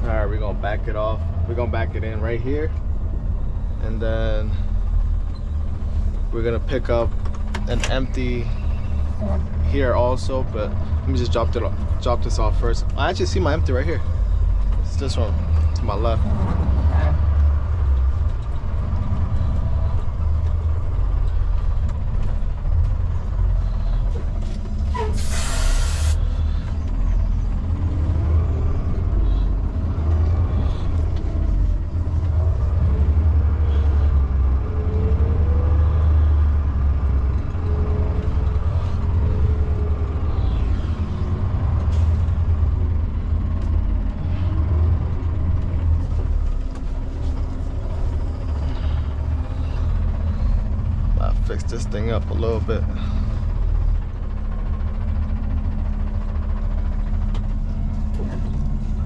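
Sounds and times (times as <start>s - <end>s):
truck diesel engine rumbling: 0.0s - 59.0s
air brake hiss: 25.0s - 26.4s.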